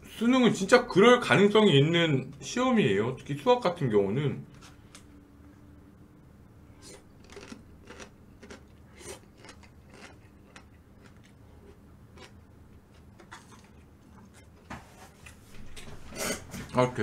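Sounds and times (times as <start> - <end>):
chewing with mouth clicks: 6.8 - 14.5.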